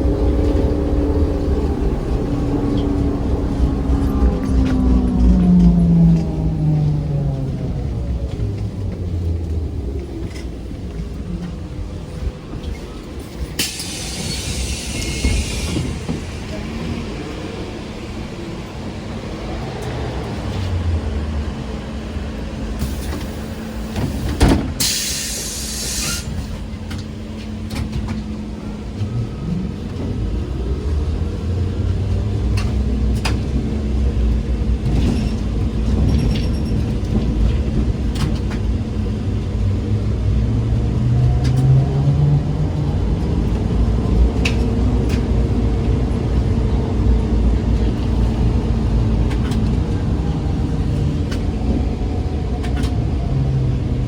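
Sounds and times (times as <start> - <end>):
traction motor whine rising: 0.0 - 10.6
trolleybus low rumble: 0.0 - 54.0
compressed air hiss: 24.2 - 26.4.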